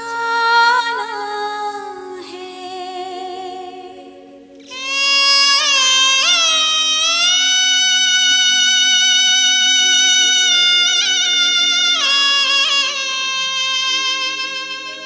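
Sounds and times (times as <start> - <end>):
held melodic vocal notes: 0.0 - 15.0
steady drone: 4.6 - 15.0.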